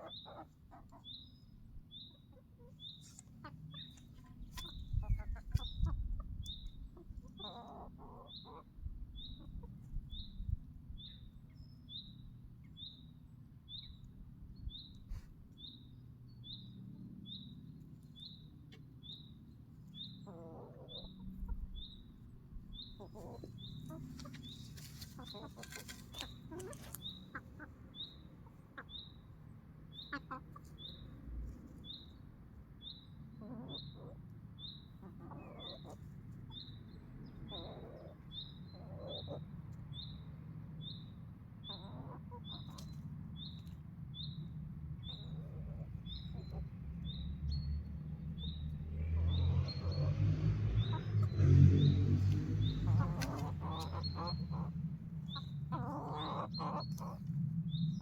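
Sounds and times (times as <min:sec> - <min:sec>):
bird chirping: 0:00.0 - 0:58.0
low rumbling scuffling noise: 0:22.7 - 0:27.3.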